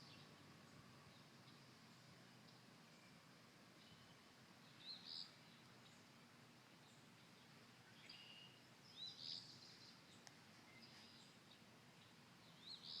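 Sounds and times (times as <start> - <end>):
faint click: 10.2 - 11.2.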